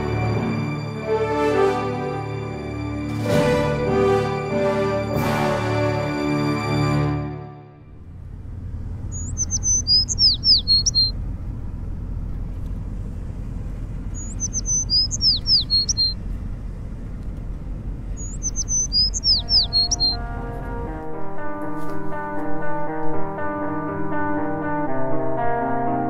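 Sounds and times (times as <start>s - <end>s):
steady low rumble: 7.8s - 24.3s
songbird singing: 8.0s - 20.8s.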